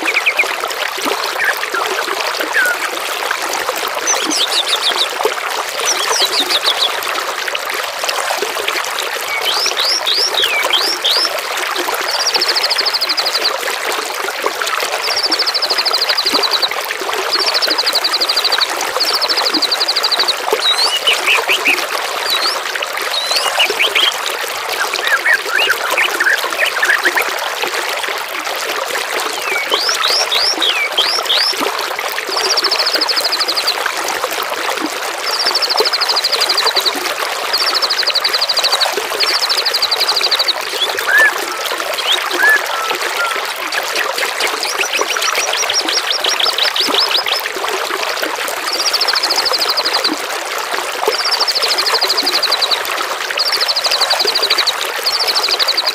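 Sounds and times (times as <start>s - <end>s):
songbirds whistling and trilling: 0.0s - 0.6s, 1.3s - 2.8s, 4.0s - 5.2s, 5.8s - 7.0s, 9.3s - 11.3s, 12.1s - 13.6s, 15.0s - 27.3s, 29.3s - 31.6s, 32.4s - 33.8s, 35.3s - 47.5s, 51.1s - 52.8s, 53.4s - 55.9s
trickling water: 0.0s - 55.9s.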